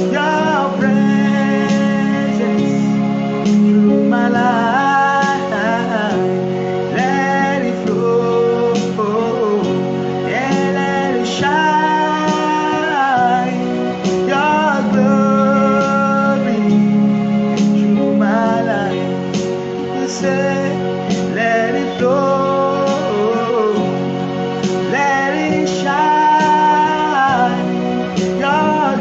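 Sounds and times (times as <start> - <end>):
person singing: 0.0 - 29.0
worship song with guitar: 0.0 - 29.0.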